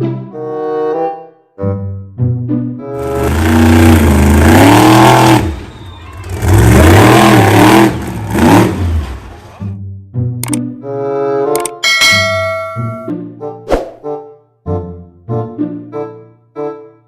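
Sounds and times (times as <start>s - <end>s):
car engine revving: 3.0s - 9.6s.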